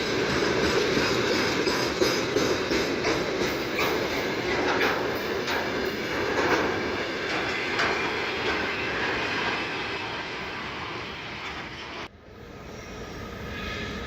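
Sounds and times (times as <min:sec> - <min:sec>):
train wheel clacks: 0:00.0 - 0:10.5
freight train wagons rumbling: 0:00.0 - 0:14.0.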